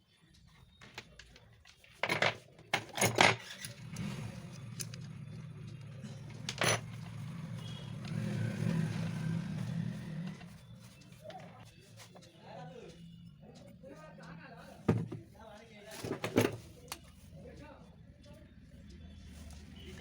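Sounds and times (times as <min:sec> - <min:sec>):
metal parts clinking: 0:01.9 - 0:07.3.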